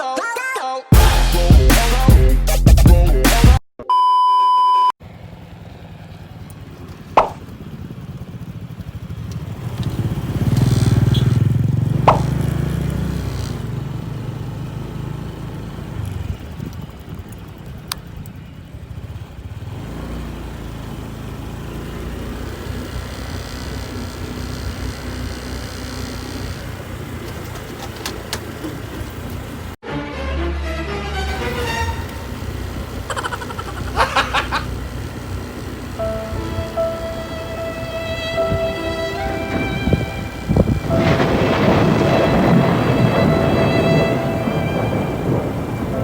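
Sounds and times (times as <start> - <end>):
electronic beep tone: 3.8 - 4.9
vehicle engine rumbling: 5.0 - 29.8, 31.2 - 46.0.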